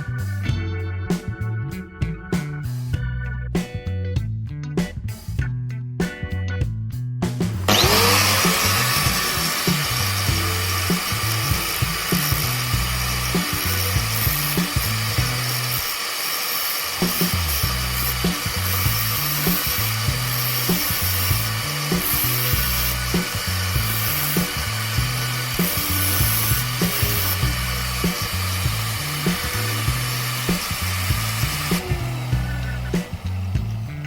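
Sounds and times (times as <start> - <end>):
background music with beat: 0.0 - 15.8, 17.0 - 34.0
drill bit being ground: 7.7 - 34.0.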